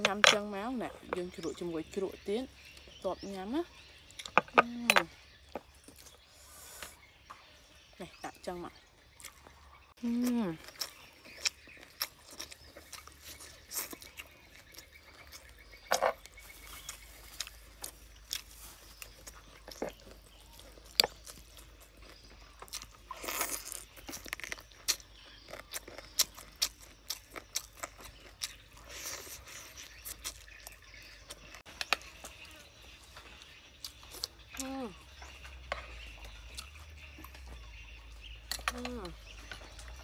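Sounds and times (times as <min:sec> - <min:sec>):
person chewing and crunching: 0:09.1 - 0:40.0.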